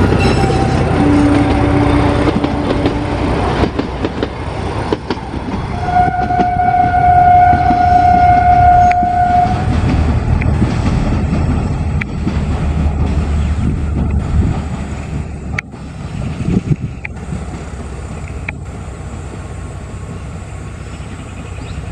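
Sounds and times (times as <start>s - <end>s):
train horn: 0.0s - 3.5s, 5.7s - 9.9s
rumble of train wagons: 0.0s - 21.9s.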